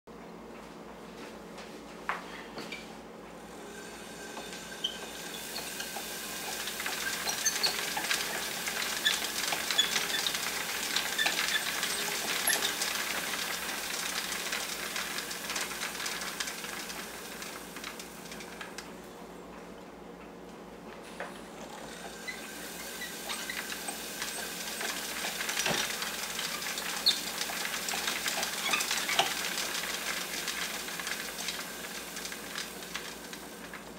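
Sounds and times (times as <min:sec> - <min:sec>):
electrostatic machine hiss: 0:03.4 - 0:17.7, 0:21.5 - 0:33.6.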